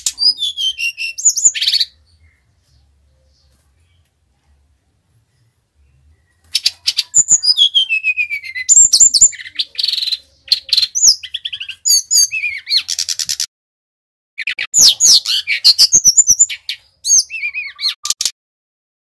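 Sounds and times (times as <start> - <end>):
bird singing whistles and trills: 0.0 - 2.4, 6.0 - 13.5, 14.4 - 18.2.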